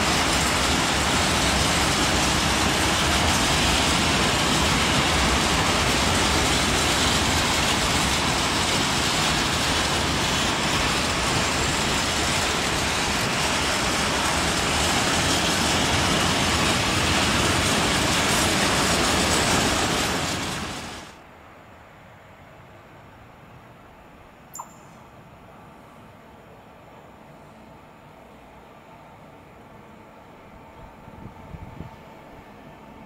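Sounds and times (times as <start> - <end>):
freight train wheels rumbling on rails: 0.0 - 21.3.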